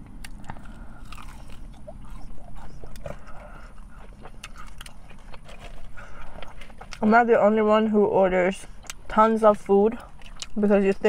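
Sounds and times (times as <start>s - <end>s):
person chewing crispy food: 0.0s - 7.1s, 9.9s - 10.6s.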